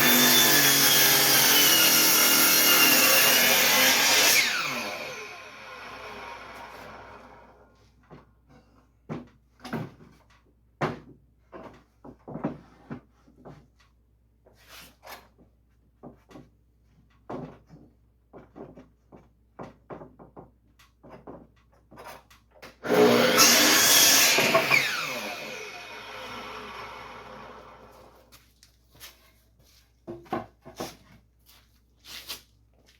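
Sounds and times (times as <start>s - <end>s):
power tool running: 0.0s - 7.5s, 22.8s - 28.2s.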